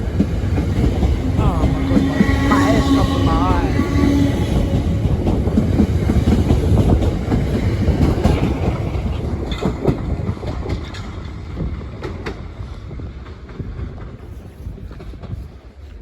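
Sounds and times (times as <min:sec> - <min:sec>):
train wheels clacking on rails: 0:00.0 - 0:15.8
train rumble: 0:00.0 - 0:16.0.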